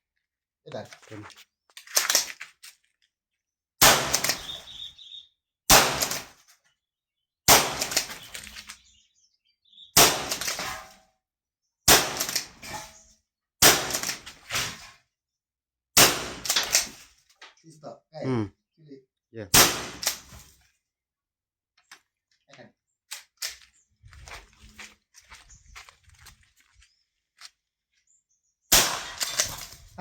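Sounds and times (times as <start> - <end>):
shotgun shots: 3.8 - 4.8, 5.7 - 6.4, 7.5 - 8.4, 10.0 - 10.9, 11.9 - 12.7, 13.6 - 14.8, 16.0 - 17.0, 19.5 - 20.4, 28.7 - 29.8.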